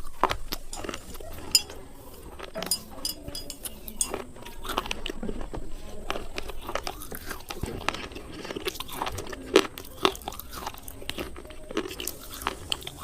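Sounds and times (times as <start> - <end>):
chewing crunches: 0.0 - 13.0
light clinks: 0.7 - 4.3.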